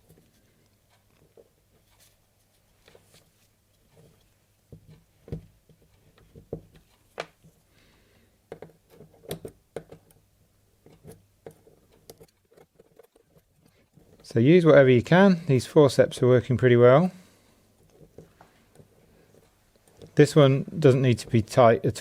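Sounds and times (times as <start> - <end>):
small metallic clicks and taps: 8.5 - 14.3, 17.8 - 20.2.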